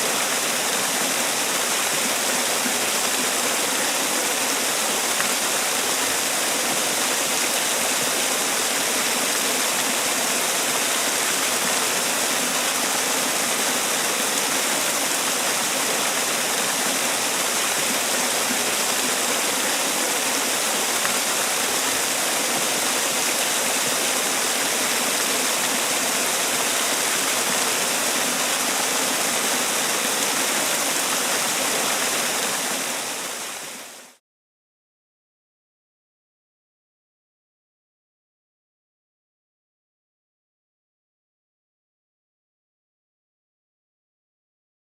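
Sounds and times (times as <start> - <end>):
waterfall rushing: 0.0 - 34.2.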